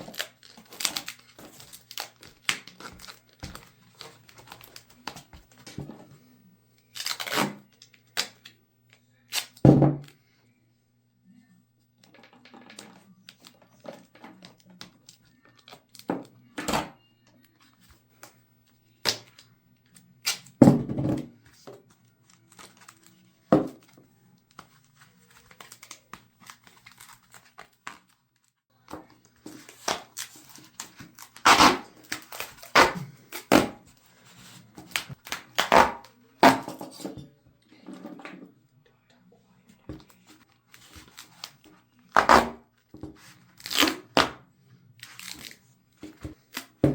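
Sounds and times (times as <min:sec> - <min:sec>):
duct tape ripping: 0:00.0 - 0:05.2, 0:06.9 - 0:08.4, 0:09.3 - 0:09.6, 0:29.6 - 0:33.8, 0:34.9 - 0:36.7, 0:40.7 - 0:42.6, 0:43.6 - 0:44.4, 0:45.0 - 0:45.6
tape crinkling: 0:00.0 - 0:05.7, 0:22.0 - 0:23.4, 0:24.5 - 0:28.5, 0:29.3 - 0:36.6, 0:39.9 - 0:44.3.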